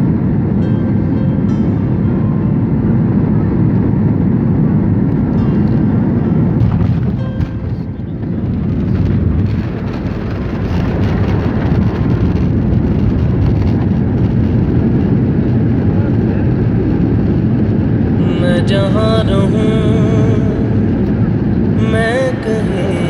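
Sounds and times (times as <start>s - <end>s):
airliner engine rumble: 0.0s - 23.0s
wavering melodic voice: 0.6s - 3.6s, 18.2s - 23.0s.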